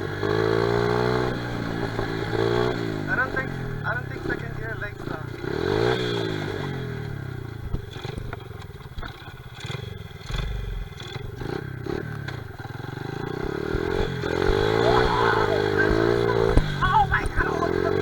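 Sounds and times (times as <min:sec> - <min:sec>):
small motorcycle engine running: 0:00.0 - 0:18.0
engine clattering knocks: 0:12.3 - 0:17.7.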